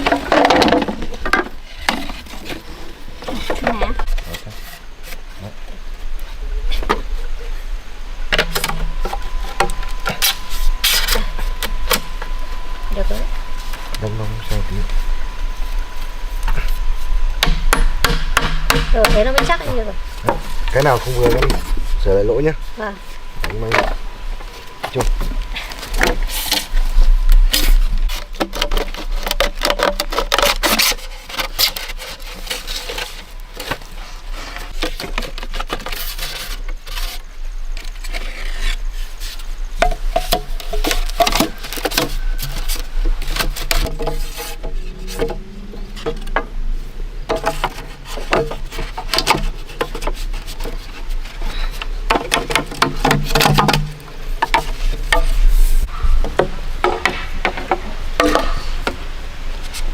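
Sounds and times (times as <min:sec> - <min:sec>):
wood scraping: 0:00.0 - 0:59.9
wood knocking: 0:17.4 - 0:21.8, 0:52.1 - 0:55.4, 0:56.2 - 0:59.0.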